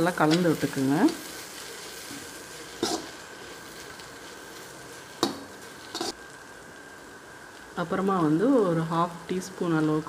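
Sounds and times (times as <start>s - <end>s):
spatula stirring in wok: 0.0s - 6.2s
food sizzling in a wok: 0.0s - 10.0s
spatula striking wok: 2.8s - 3.1s, 5.2s - 6.2s.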